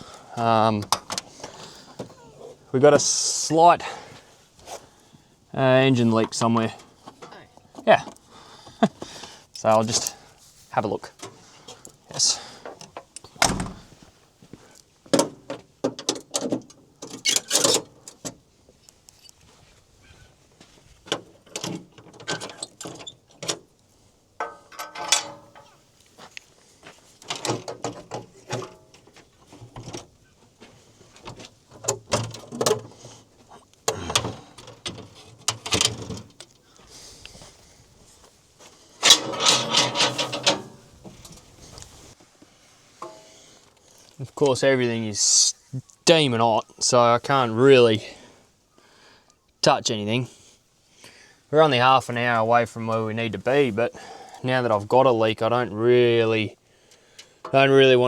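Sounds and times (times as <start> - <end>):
metal parts knocking and clunking: 15.1 - 18.4, 24.4 - 25.9, 27.2 - 30.1, 39.0 - 41.5
metal clattering: 24.4 - 25.9, 39.0 - 41.4.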